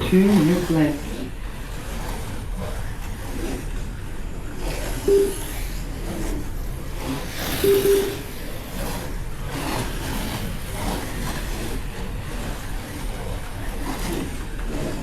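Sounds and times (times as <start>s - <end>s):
small electric motors whirring: 4.6s - 15.0s
short beep: 5.1s - 5.5s, 7.6s - 8.3s.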